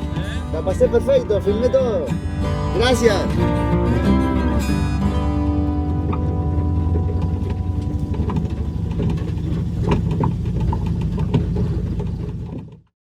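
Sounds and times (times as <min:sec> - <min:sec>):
vehicle engine running: 0:00.0 - 0:12.9
light clicks and knocks: 0:05.9 - 0:12.9.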